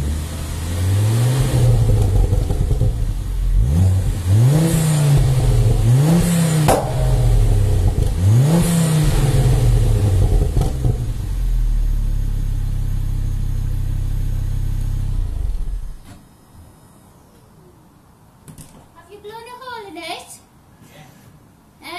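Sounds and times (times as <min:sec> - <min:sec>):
car engine idling: 0:00.0 - 0:16.0
car engine revving: 0:00.0 - 0:16.0.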